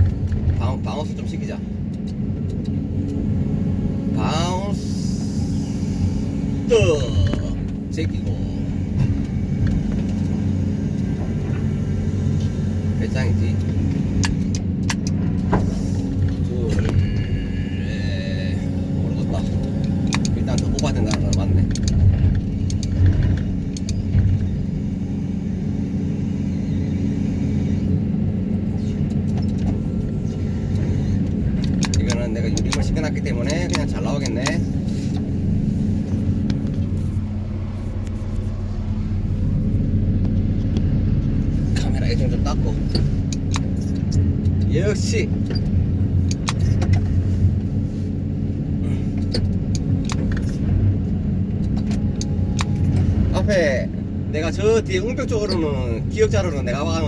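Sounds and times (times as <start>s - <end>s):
excavator diesel engine droning: 0.0s - 57.0s
sharp clicks: 30.7s - 35.3s.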